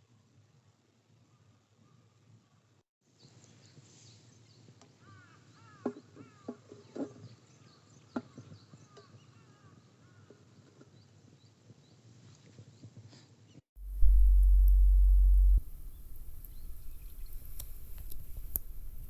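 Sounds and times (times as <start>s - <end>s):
birds chirping: 13.8s - 19.0s.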